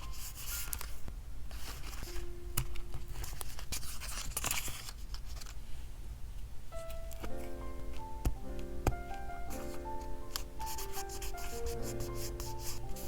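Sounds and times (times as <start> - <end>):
paper scraping: 0.0 - 5.6, 10.4 - 13.0
paper rustling: 0.0 - 5.8, 9.5 - 13.0
paper tearing: 3.2 - 5.6.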